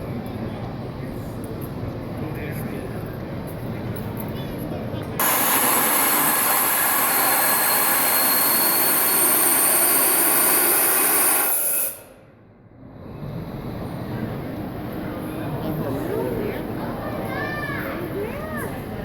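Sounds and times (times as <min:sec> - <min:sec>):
steam engine hiss: 0:05.2 - 0:12.3
faint high whistle: 0:07.2 - 0:12.4.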